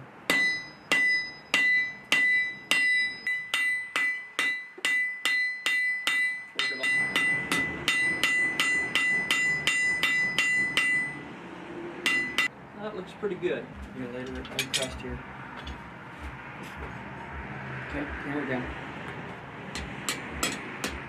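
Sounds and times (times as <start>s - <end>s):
hammer striking steel on anvil: 0.3s - 11.3s, 12.0s - 12.5s, 14.2s - 15.8s, 19.1s - 21.0s.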